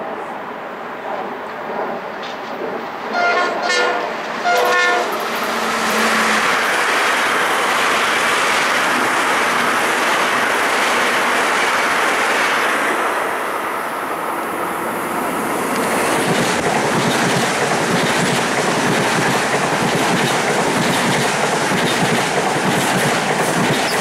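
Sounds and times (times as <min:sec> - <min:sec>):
train wheels rushing on rails: 0:00.0 - 0:24.0
train horn blasts: 0:03.1 - 0:05.2.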